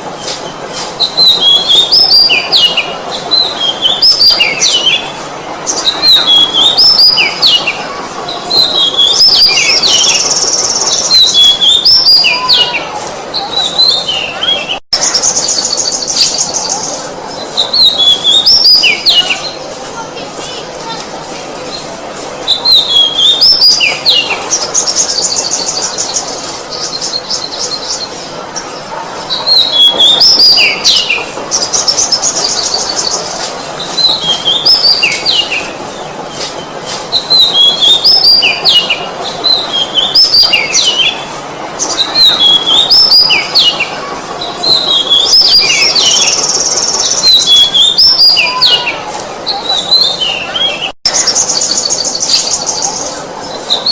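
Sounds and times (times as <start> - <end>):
bird singing whistled phrases: 1.0 - 5.1, 5.7 - 7.7, 8.4 - 16.9, 17.6 - 19.6, 22.5 - 28.0, 37.1 - 41.2, 41.9 - 43.9, 44.6 - 48.9.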